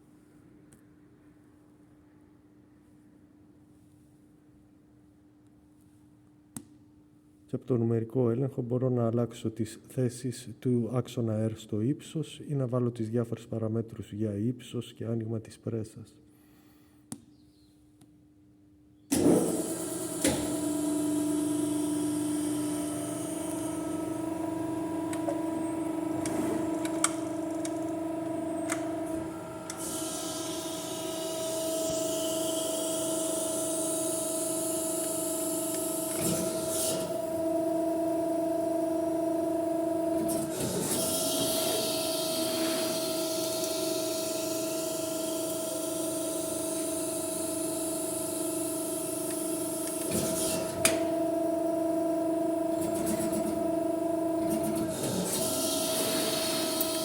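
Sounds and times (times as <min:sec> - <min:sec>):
machine hum: 0:19.1 - 0:57.0.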